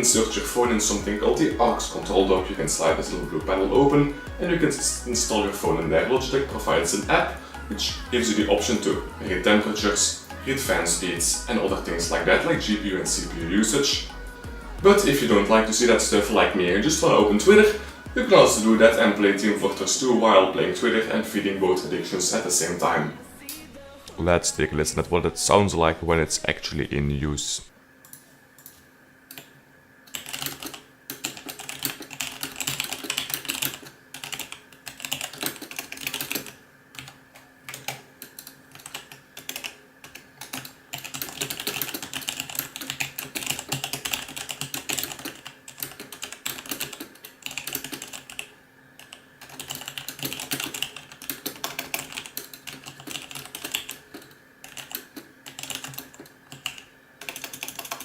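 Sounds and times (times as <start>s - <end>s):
mechanical keyboard typing: 30.1s - 58.0s.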